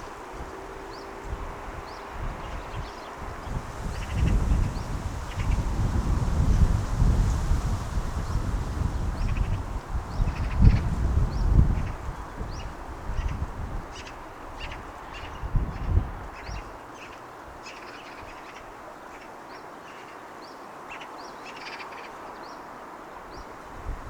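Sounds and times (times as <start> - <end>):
distant city hum: 0.0 - 3.5
birds chirping: 0.0 - 5.6
wind rumbling on microphone: 0.0 - 17.6, 23.2 - 24.0.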